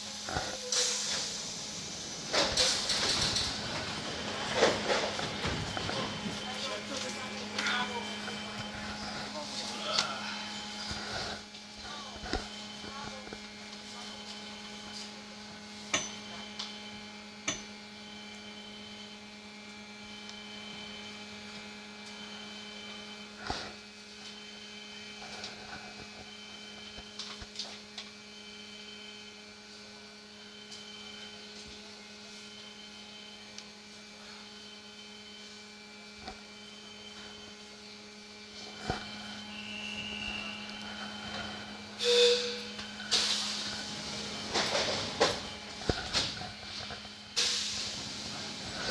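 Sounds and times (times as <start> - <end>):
train electrical hum: 0.0 - 48.9
short high beep: 42.0 - 42.8.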